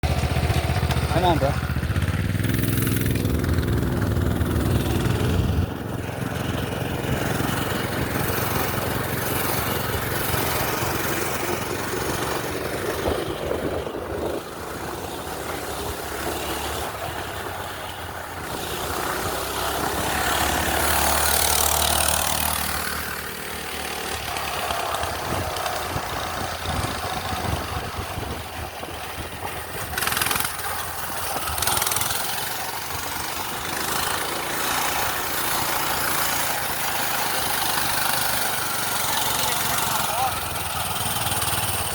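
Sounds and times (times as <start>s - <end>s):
small gasoline engine running: 0.0s - 41.9s
wind rushing over microphone: 1.8s - 16.0s, 24.2s - 34.4s.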